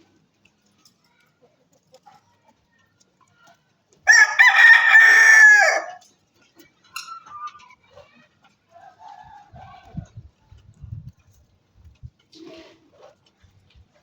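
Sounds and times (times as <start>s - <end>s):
rooster crowing: 4.1s - 6.0s.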